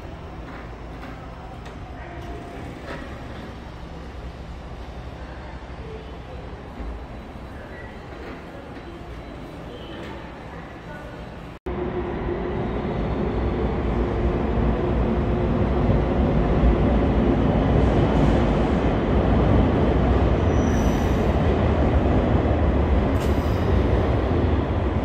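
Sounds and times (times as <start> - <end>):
train rumbling by: 0.0 - 25.0.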